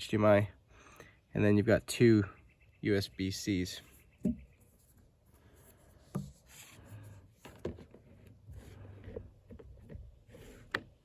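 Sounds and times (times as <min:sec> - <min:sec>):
plastic device handling noise: 0:05.7 - 0:11.0.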